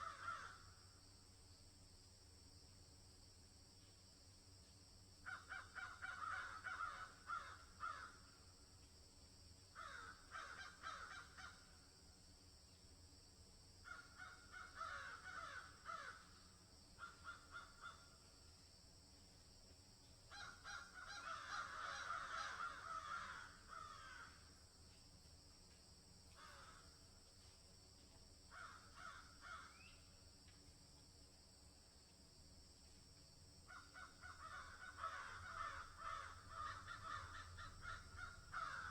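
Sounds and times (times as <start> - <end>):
crows cawing: 0.0 - 0.8, 5.2 - 8.4, 9.8 - 11.8, 13.8 - 18.3, 20.3 - 24.6, 26.3 - 27.0, 28.5 - 29.9, 33.7 - 38.9
high insect trill: 0.0 - 38.9.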